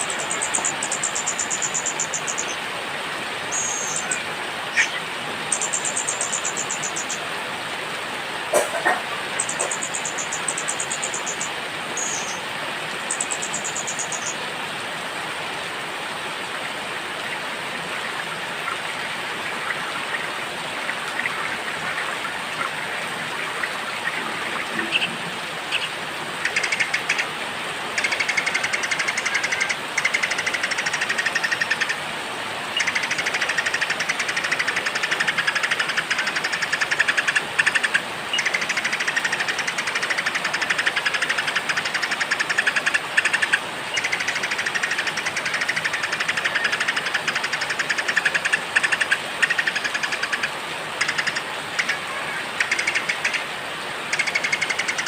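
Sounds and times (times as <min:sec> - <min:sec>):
songbirds buzzy trills: 0:00.0 - 0:02.6, 0:03.4 - 0:07.3, 0:08.5 - 0:14.4, 0:18.6 - 0:27.3, 0:32.8 - 0:55.0
steady rain hiss: 0:00.0 - 0:55.0.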